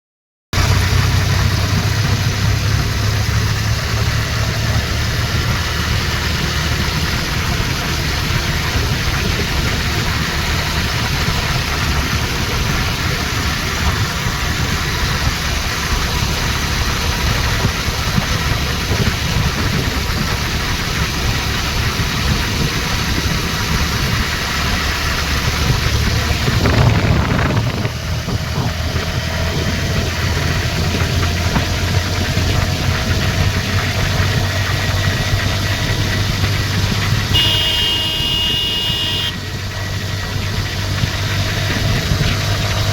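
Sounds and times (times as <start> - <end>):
motorcycle engine running: 0.6 - 42.9
road noise: 0.6 - 42.9.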